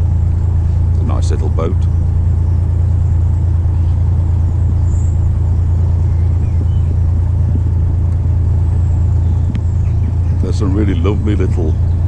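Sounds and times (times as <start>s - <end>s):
boat diesel engine humming: 0.0s - 12.0s.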